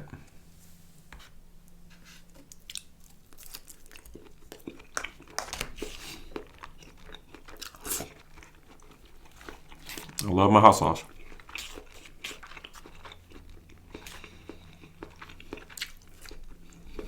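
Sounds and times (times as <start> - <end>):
wet chewing clicks and smacks: 2.4 - 17.0.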